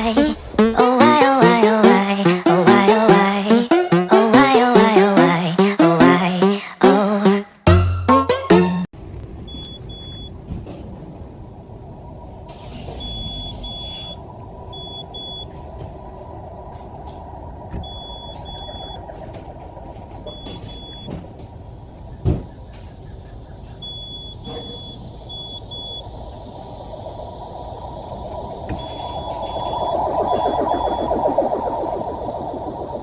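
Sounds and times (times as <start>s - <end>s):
steady low hum: 26.3s - 33.0s.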